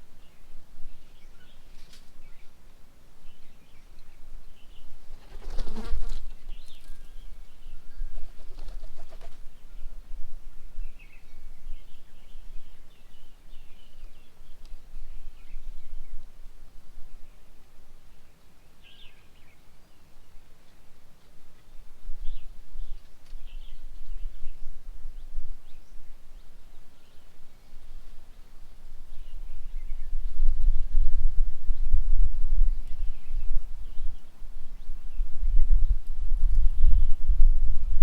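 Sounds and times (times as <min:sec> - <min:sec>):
small birds chirping: 0:00.0 - 0:16.5, 0:17.1 - 0:37.4
wings flapping: 0:05.0 - 0:06.8, 0:08.1 - 0:09.5.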